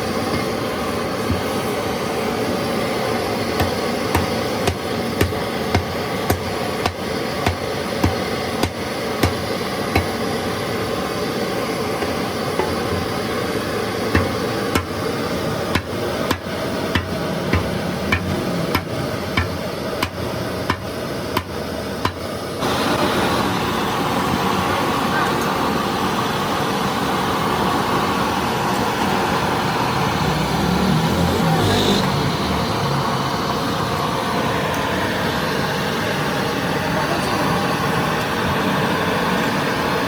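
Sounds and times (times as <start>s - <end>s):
workshop hum: 0.0s - 40.0s
hammer strikes: 3.6s - 10.2s, 12.0s - 13.2s, 14.1s - 15.0s, 15.7s - 22.2s.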